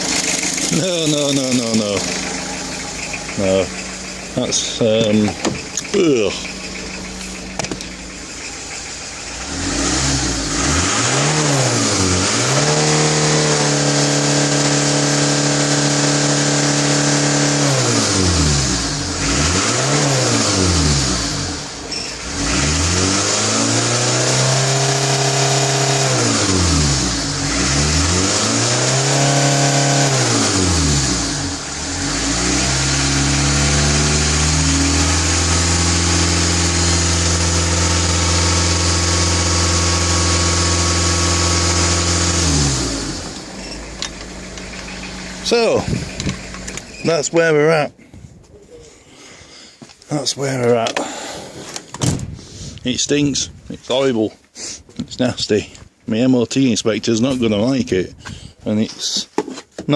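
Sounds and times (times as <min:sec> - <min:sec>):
car engine revving: 0:00.0 - 0:47.6.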